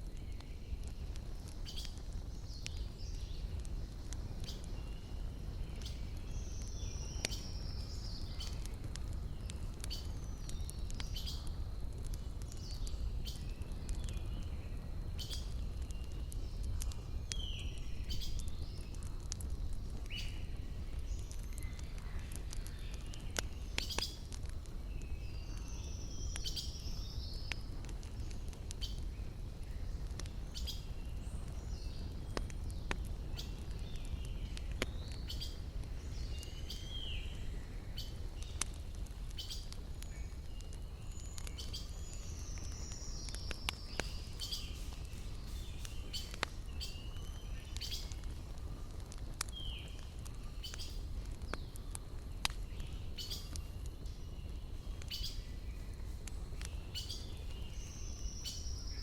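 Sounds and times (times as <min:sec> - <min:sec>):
wood fire crackling and popping: 0:00.0 - 0:59.0
birds chirping and whistling: 0:39.4 - 0:48.3, 0:52.6 - 0:59.0.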